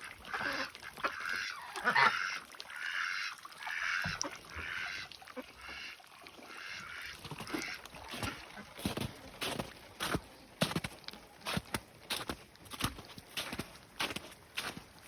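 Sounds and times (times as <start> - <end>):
waterfowl honking: 0.0 - 10.8.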